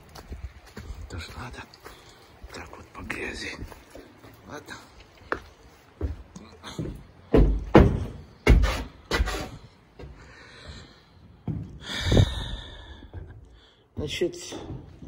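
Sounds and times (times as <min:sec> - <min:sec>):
heavy thumps and knocks: 0:07.3 - 0:09.3.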